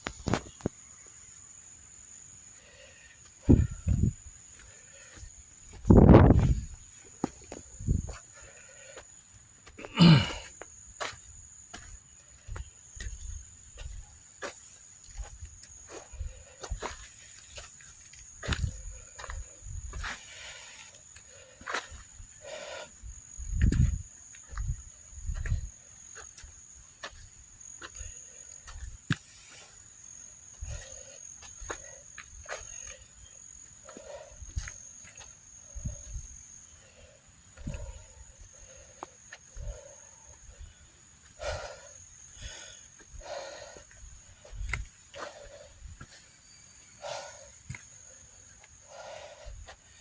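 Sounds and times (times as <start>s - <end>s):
footsteps on forest trail: 4.0s - 36.6s, 37.4s - 50.0s
person breathing heavily: 8.1s - 10.5s, 18.4s - 23.1s, 27.9s - 34.7s, 36.8s - 46.0s, 46.8s - 50.0s.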